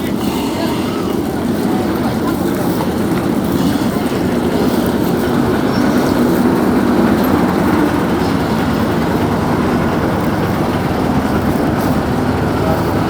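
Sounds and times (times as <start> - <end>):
ferry engine rumbling: 0.0 - 13.0.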